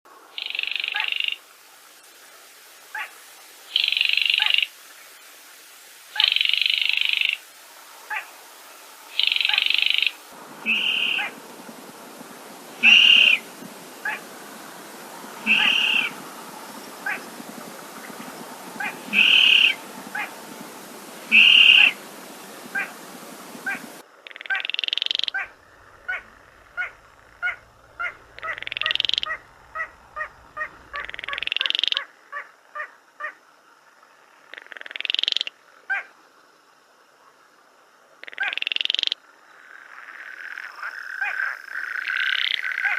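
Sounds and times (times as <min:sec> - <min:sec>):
rising rattling bird calls: 0:09.0 - 0:24.0, 0:24.6 - 0:32.0
bird clicking calls: 0:09.2 - 0:11.9, 0:12.8 - 0:20.6, 0:21.2 - 0:23.9, 0:26.0 - 0:31.9
short bird pips: 0:10.6 - 0:11.3, 0:12.8 - 0:14.2, 0:15.4 - 0:16.2, 0:18.8 - 0:20.3, 0:21.3 - 0:22.0.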